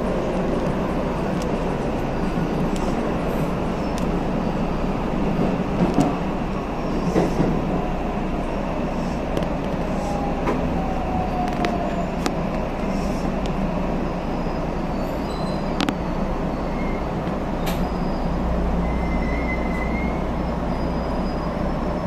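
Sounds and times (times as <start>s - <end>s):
electric train rumbling: 0.0s - 22.0s
faint high squeaks: 14.9s - 17.0s.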